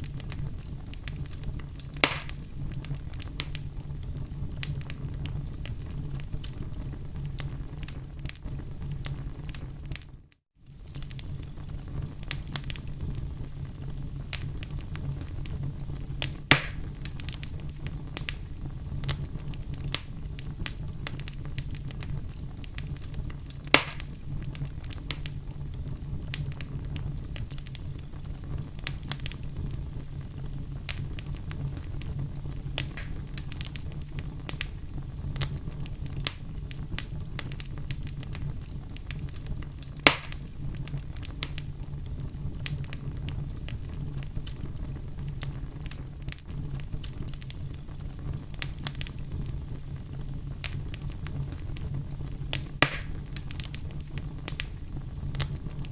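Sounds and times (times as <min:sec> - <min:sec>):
loud pops of fire: 0:00.0 - 0:55.9
wood fire crackling: 0:00.0 - 0:55.9.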